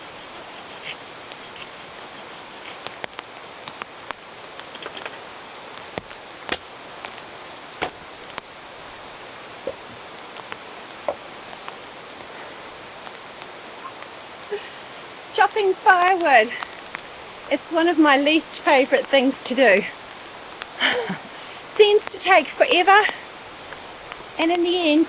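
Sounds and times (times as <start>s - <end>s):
rain falling: 0.0s - 25.0s
firewood chopping knocks: 7.8s - 8.1s, 9.6s - 10.0s, 11.0s - 11.2s.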